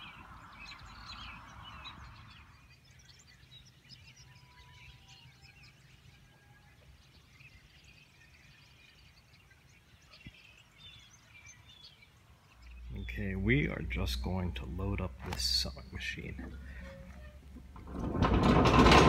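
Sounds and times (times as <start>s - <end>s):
faint songbirds chirping: 0.0s - 19.0s
low background rumble: 9.0s - 19.0s.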